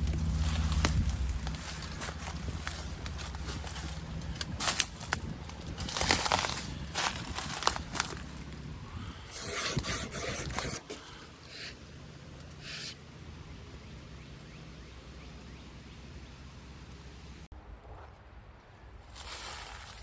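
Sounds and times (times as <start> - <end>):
crunching scraping footsteps: 0.0 - 11.6
low steady rumble: 0.0 - 19.1.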